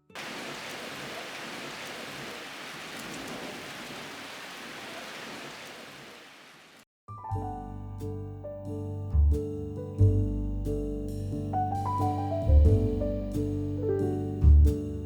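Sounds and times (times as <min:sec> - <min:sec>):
steady rain falling: 0:00.0 - 0:06.8.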